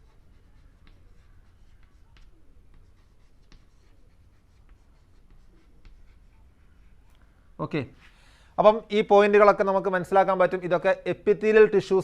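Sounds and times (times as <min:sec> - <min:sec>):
pen scratching and tapping: 0:00.0 - 0:06.8.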